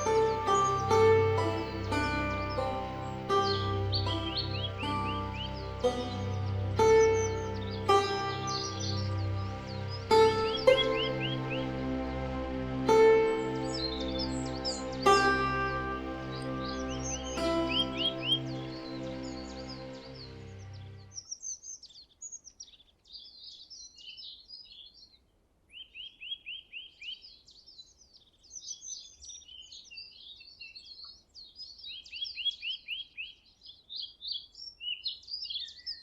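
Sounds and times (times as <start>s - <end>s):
music: 0.0s - 21.2s
birds singing and chirping: 0.0s - 25.1s.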